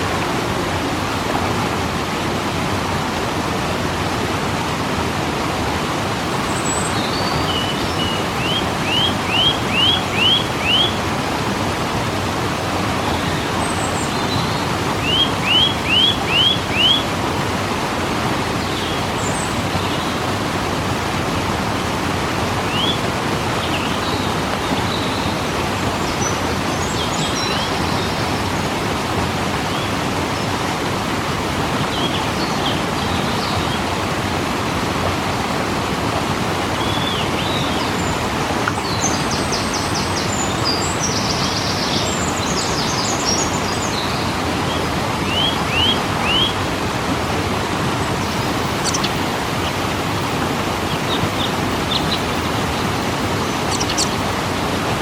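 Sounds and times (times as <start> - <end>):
waterfall rushing: 0.0 - 55.0
small birds chirping: 6.4 - 11.0, 13.0 - 17.0, 47.9 - 49.8, 50.9 - 54.4.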